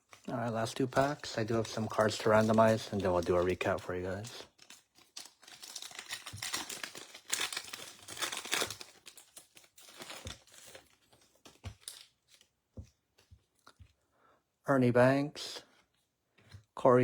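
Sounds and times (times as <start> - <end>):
foil wrapper tearing and crinkling: 0.0 - 12.5.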